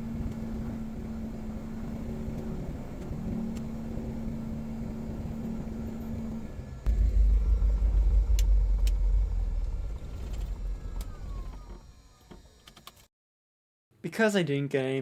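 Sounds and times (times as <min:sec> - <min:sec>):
light aircraft engine and propeller: 0:00.0 - 0:13.1.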